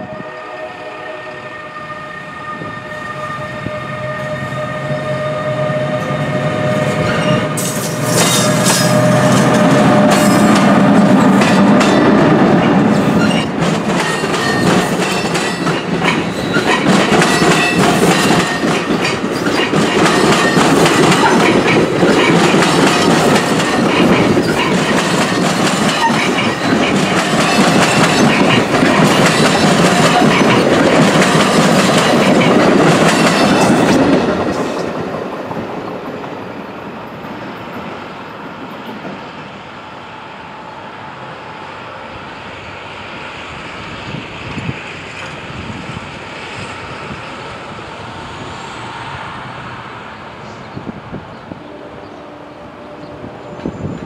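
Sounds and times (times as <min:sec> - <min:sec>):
train horn: 0:00.0 - 0:11.7, 0:51.5 - 0:54.0
train passing with rumble: 0:00.0 - 0:54.0
wheels clacking over rail joints: 0:07.0 - 0:36.5.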